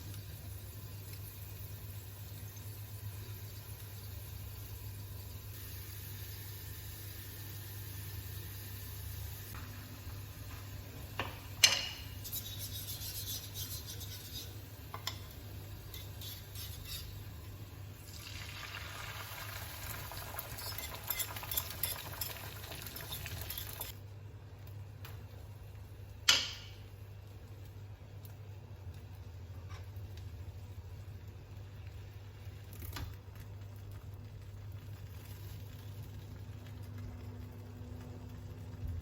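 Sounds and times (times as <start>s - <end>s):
stirring and scraping in dish: 11.6s - 17.3s, 20.6s - 23.9s.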